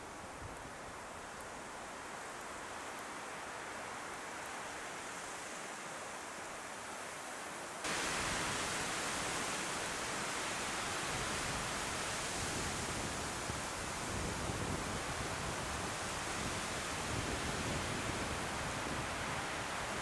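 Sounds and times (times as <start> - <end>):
strong wind blowing: 10.4 - 20.0.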